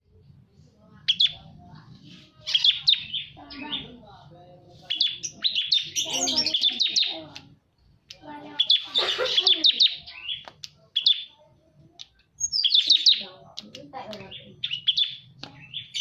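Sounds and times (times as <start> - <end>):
bird chirping rapidly: 2.4 - 4.0, 4.8 - 7.3, 8.3 - 11.4, 12.4 - 13.4, 14.2 - 16.0.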